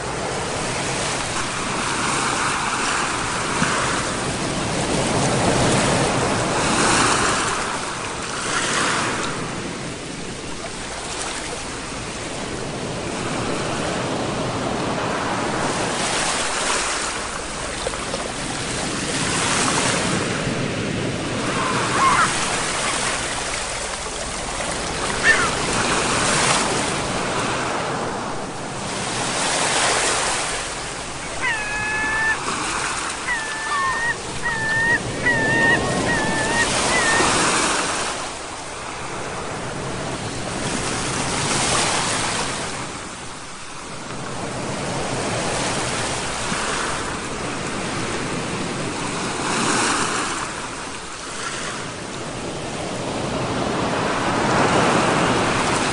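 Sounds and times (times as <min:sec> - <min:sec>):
ocean waves breaking on shore: 0:00.0 - 0:55.9
bird calls: 0:21.4 - 0:26.2, 0:31.0 - 0:38.1.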